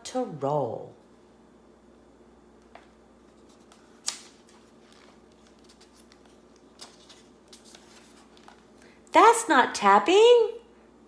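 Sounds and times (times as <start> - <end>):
low room hum: 0.0 - 11.0
book pages rustling: 2.7 - 8.9.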